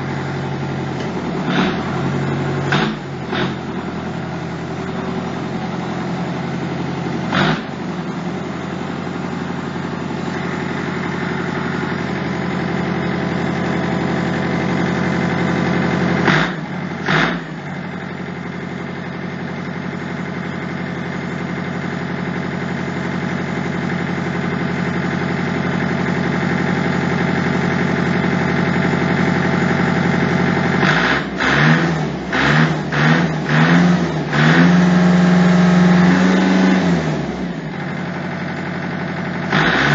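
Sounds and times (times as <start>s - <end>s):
tractor engine running: 0.0s - 39.9s
engine revving in blips: 1.0s - 3.9s, 7.2s - 8.0s, 15.8s - 17.6s, 30.8s - 37.5s, 39.5s - 39.9s.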